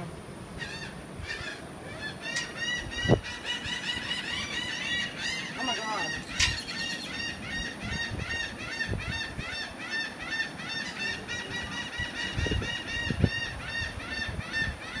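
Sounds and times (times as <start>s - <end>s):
seagulls squawking: 0.6s - 15.0s.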